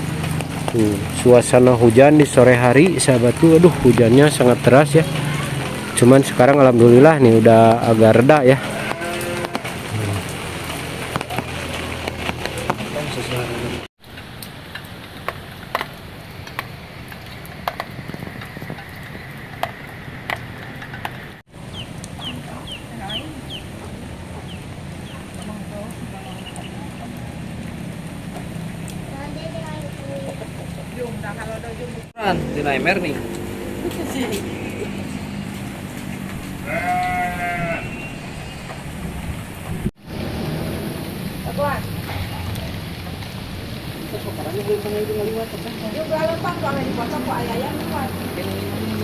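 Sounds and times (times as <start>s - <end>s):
rain hissing: 0.0s - 49.0s
sheep bleating: 8.6s - 10.1s, 36.6s - 38.1s.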